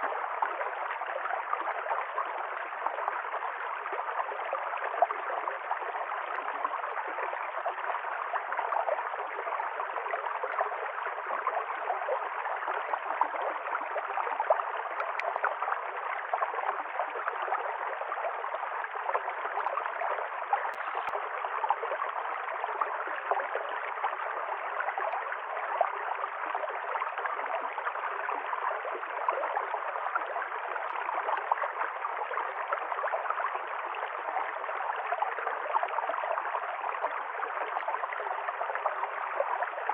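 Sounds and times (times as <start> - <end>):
stream flowing and gurgling: 0.0 - 39.9
small water splashes: 9.7 - 39.9.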